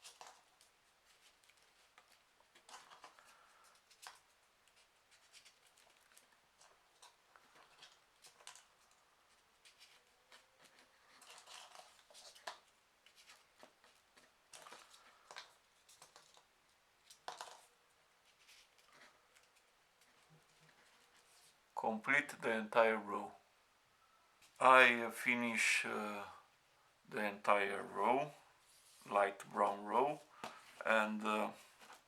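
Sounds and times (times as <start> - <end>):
paper rustling and crinkling: 0.0 - 21.6, 28.6 - 32.0.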